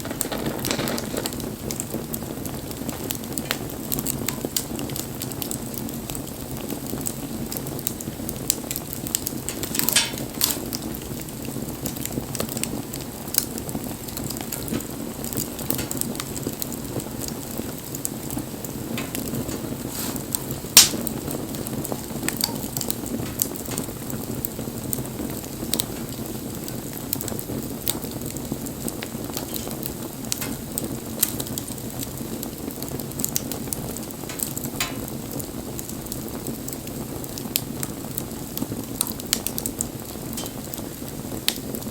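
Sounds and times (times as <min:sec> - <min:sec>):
bonfire flame rushing: 0:00.0 - 0:41.9
fire crackles and pops: 0:00.0 - 0:41.9
loud sharp wood snap: 0:19.0 - 0:21.2.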